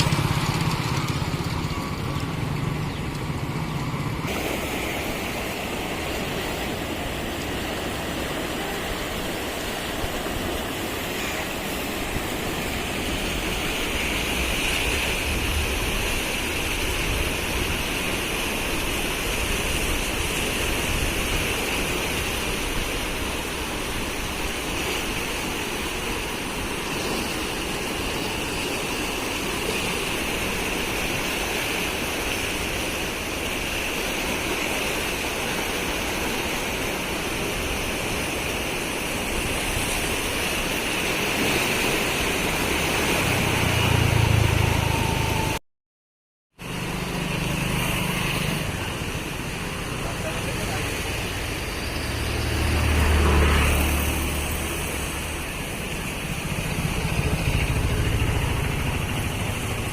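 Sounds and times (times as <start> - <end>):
low engine hum: 0.0 - 33.2, 39.1 - 45.6, 46.6 - 59.9
river water rushing: 0.0 - 45.6, 46.6 - 59.9.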